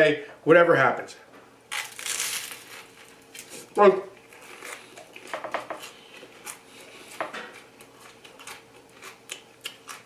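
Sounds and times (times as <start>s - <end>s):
mouth clicks and smacks chewing: 8.1s - 10.0s.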